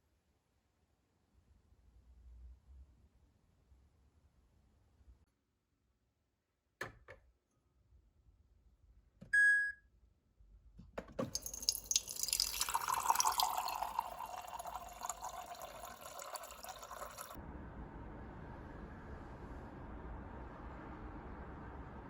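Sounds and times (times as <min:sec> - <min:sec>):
water running into a cup: 0:11.2 - 0:17.4.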